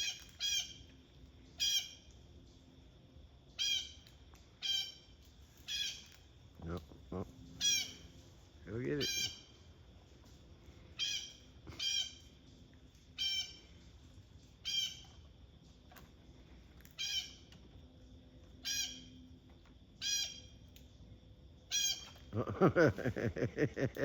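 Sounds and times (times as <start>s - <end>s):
blue jay squawking: 0.0s - 0.7s, 1.6s - 1.9s, 3.6s - 3.9s, 4.6s - 5.0s, 5.7s - 6.1s, 7.6s - 8.1s, 9.0s - 9.5s, 11.0s - 12.2s, 13.2s - 13.6s, 14.6s - 15.0s, 17.0s - 17.4s, 18.6s - 19.0s, 20.0s - 20.4s, 21.7s - 22.2s.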